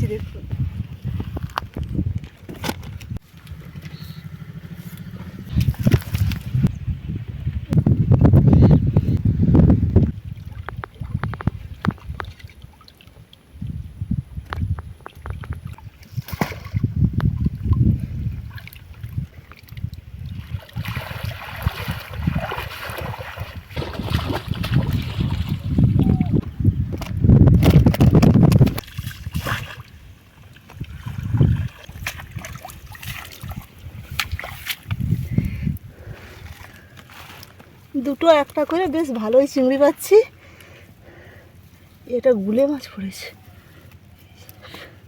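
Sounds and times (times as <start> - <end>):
water sloshing and splashing: 0.0 - 6.7, 9.9 - 13.8, 14.4 - 44.1
river water splashing: 15.1 - 16.9, 18.4 - 26.1, 28.6 - 35.0.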